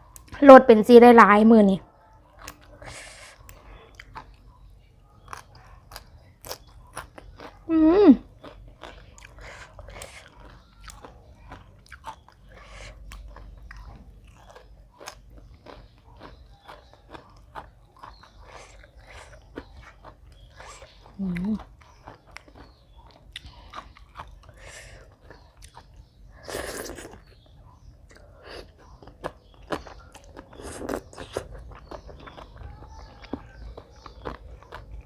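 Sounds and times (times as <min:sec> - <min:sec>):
crunchy chewing: 0:02.1 - 0:35.0
person humming: 0:07.7 - 0:08.2.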